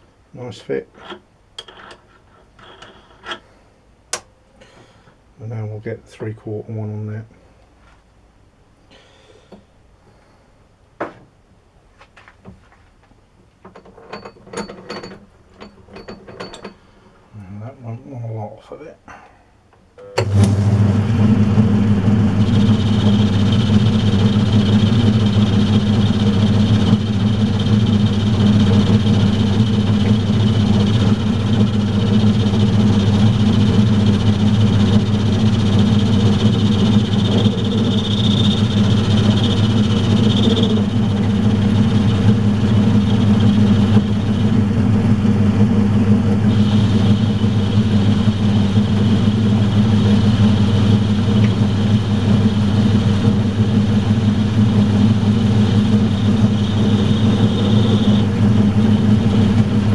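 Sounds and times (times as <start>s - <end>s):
metal lathe humming: 0.0s - 3.4s, 20.2s - 59.9s
high cutting whine: 20.2s - 59.9s.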